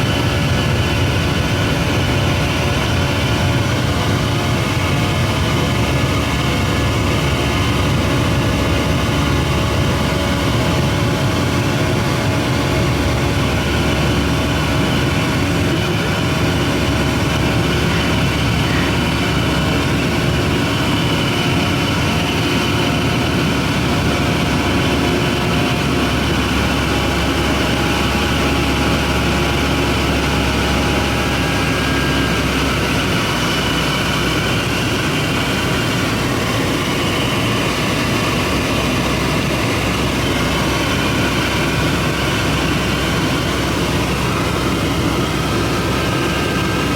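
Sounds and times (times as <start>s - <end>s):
airliner engines droning in cabin: 0.0s - 46.9s.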